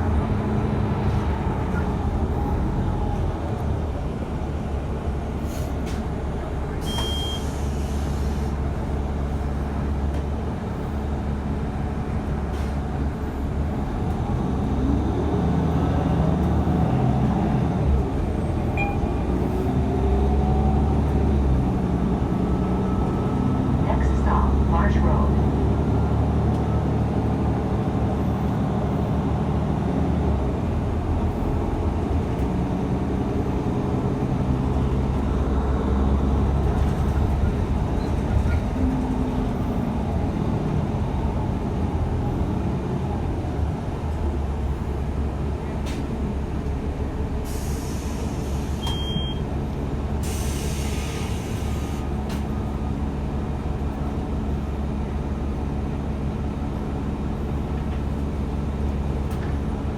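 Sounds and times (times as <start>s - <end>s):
bus engine drone: 0.0s - 59.9s
air brake hisses: 6.8s - 8.6s, 47.4s - 49.0s, 50.2s - 52.0s.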